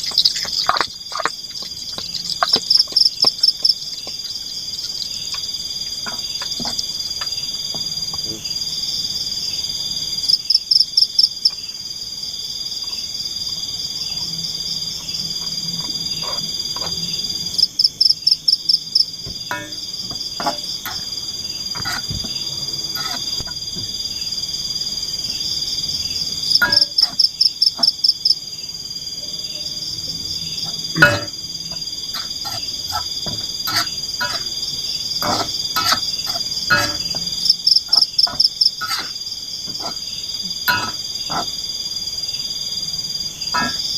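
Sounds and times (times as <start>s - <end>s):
sharp ticks: 0.0s - 3.8s
rapid pulsed animal calls: 0.0s - 6.5s
high insect drone: 0.0s - 43.9s.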